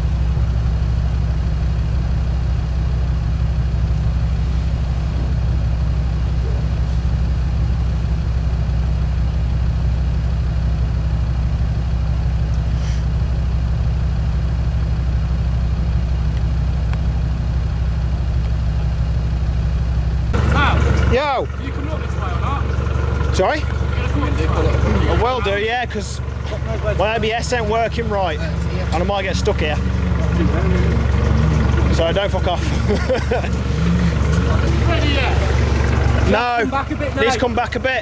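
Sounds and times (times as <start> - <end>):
diesel engine idling: 0.0 - 38.0.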